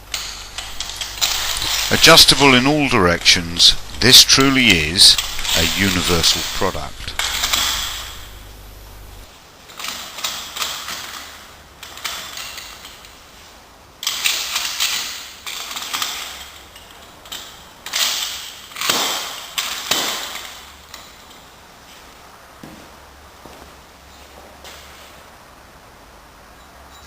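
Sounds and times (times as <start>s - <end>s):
metal mechanism clicking: 0.0s - 8.3s.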